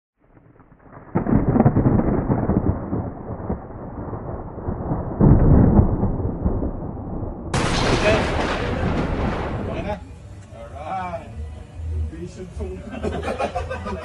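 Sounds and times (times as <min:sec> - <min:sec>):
thunder rumbling: 0:00.2 - 0:10.0.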